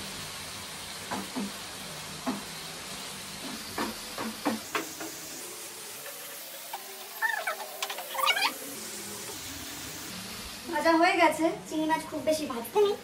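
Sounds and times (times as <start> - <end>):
prawns frying in hot oil: 0.0 - 13.0.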